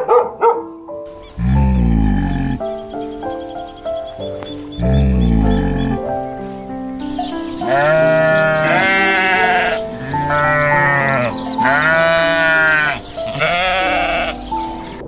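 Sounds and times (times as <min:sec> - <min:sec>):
background music: 0:00.0 - 0:15.0
goats bleating: 0:01.4 - 0:02.7, 0:04.8 - 0:06.1, 0:07.6 - 0:14.4.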